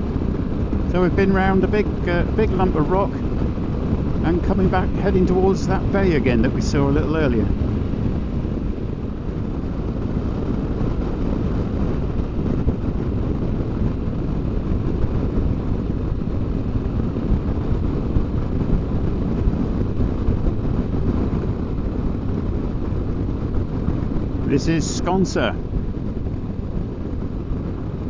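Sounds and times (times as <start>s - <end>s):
motorcycle engine drone: 0.0s - 28.0s
rushing wind: 0.0s - 28.0s.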